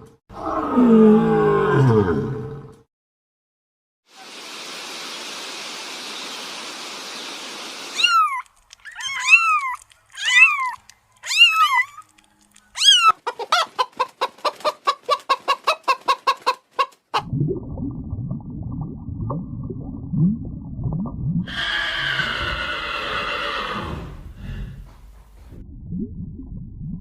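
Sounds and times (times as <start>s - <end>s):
steady hiss: 4.1s - 8.0s
animal calling: 7.9s - 13.7s.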